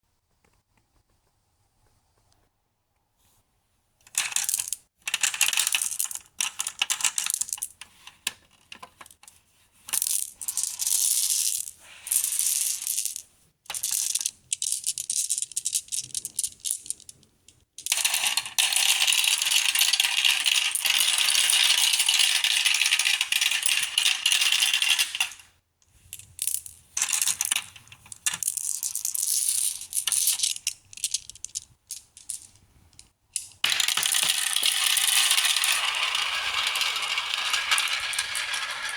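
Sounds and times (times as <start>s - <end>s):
marbles rattling along a track: 4.2s - 7.7s, 9.9s - 17.2s, 17.8s - 25.4s, 26.4s - 38.9s.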